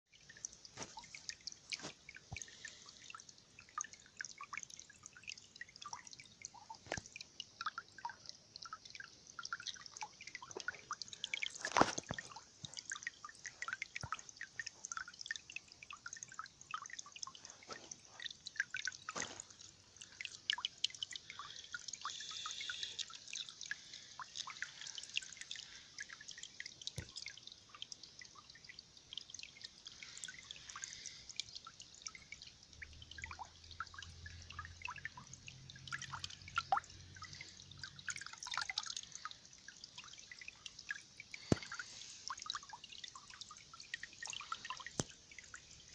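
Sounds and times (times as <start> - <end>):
water trickling and dripping: 0.1 - 45.9
soft hiss: 21.1 - 27.2, 41.2 - 43.4.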